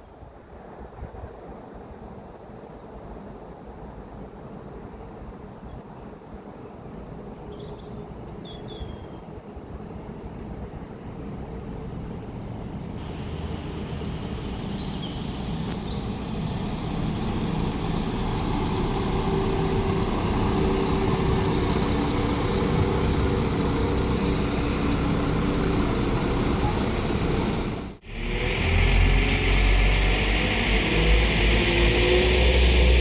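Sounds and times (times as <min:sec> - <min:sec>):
diesel train approaching: 0:09.8 - 0:33.0
steady engine note: 0:13.0 - 0:33.0.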